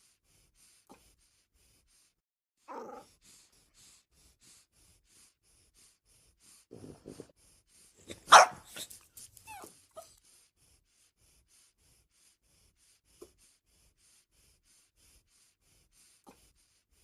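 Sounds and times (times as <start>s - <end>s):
dog whimpering: 8.1s - 10.1s.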